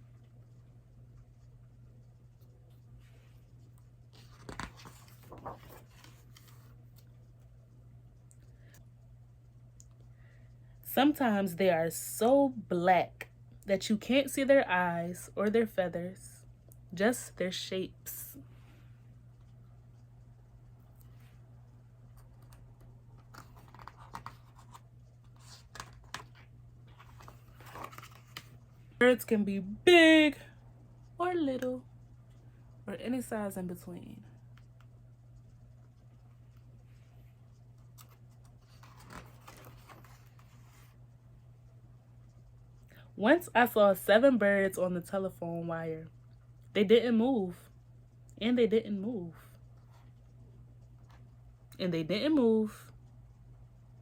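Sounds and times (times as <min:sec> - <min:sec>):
steady low hum: 0:00.0 - 0:54.0
paper page rustling: 0:04.1 - 0:07.2, 0:23.2 - 0:28.6, 0:37.8 - 0:41.0.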